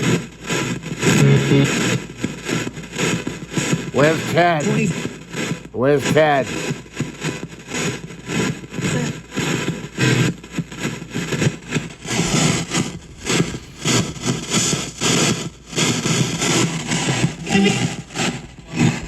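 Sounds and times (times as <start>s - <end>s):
radio static and broken fragments: 4.0s - 6.6s.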